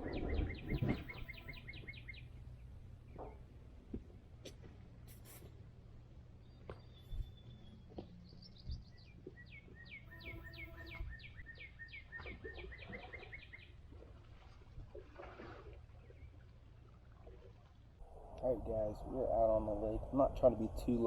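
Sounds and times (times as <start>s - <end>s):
low background rumble: 15.8s - 21.0s.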